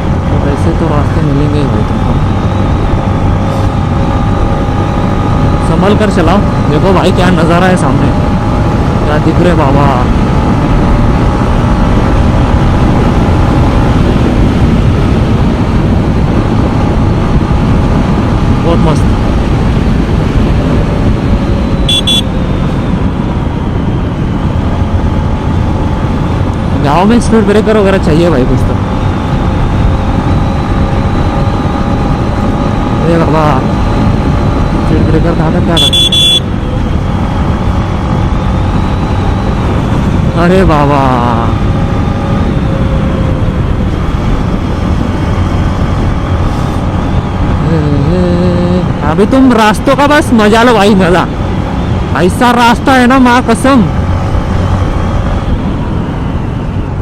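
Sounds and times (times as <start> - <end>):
motorcycle engine running: 0.0 - 57.0
wind rumble on microphone: 0.0 - 57.0
high-pitched double beep: 21.7 - 22.3, 35.7 - 36.5.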